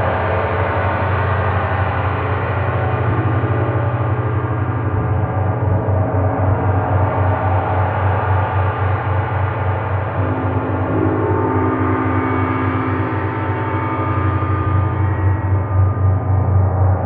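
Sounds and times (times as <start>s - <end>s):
gong sustained shimmer: 10.0s - 17.0s.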